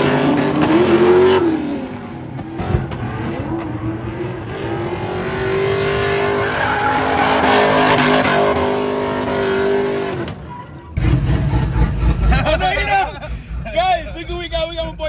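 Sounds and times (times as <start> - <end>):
truck engine at high revs: 0.0 - 15.0
tyres squealing: 6.1 - 9.2.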